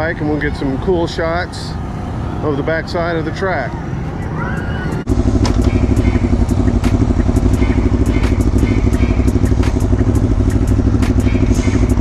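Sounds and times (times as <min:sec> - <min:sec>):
motorcycle engine running: 0:05.0 - 0:12.0.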